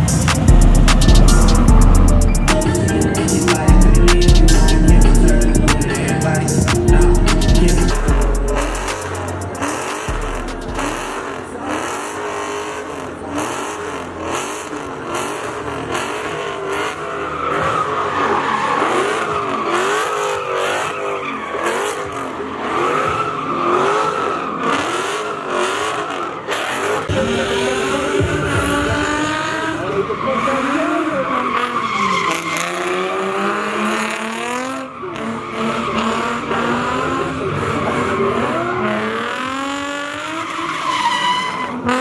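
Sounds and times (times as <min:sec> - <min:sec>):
car engine revving: 0:00.0 - 0:42.0
tyres squealing: 0:28.6 - 0:33.0, 0:40.4 - 0:42.0.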